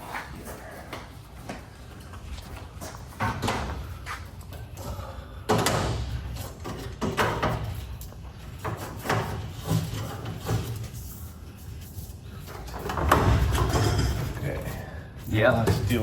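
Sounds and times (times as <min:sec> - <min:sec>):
garage door hardware clanking: 0:03.0 - 0:11.2, 0:12.4 - 0:16.0.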